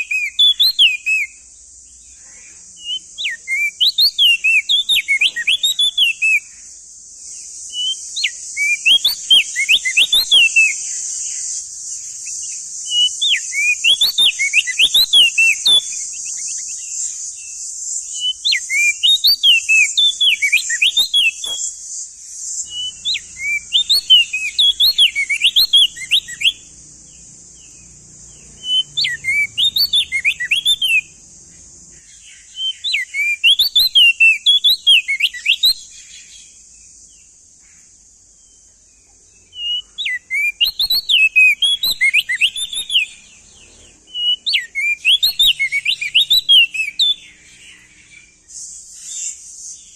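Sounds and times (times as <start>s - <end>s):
bird singing whistled phrases: 0.0s - 1.5s, 2.8s - 6.6s, 7.7s - 31.2s, 32.0s - 36.5s, 39.5s - 49.9s
steady high hiss: 0.0s - 49.9s.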